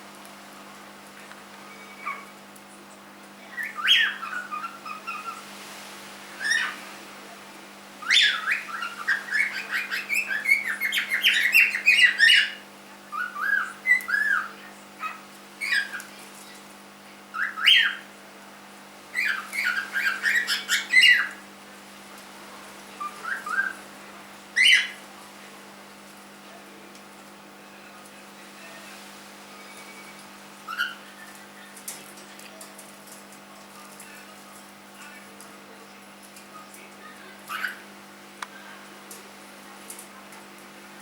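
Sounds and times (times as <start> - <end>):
cockatiel chirping and whistling: 1.7 - 2.3, 17.4 - 18.0, 19.2 - 21.4.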